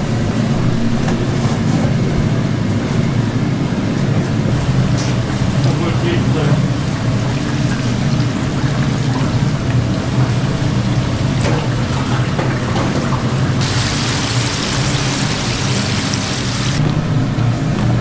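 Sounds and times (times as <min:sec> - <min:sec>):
steady low hum: 0:00.0 - 0:18.0
food sizzling: 0:04.5 - 0:16.9.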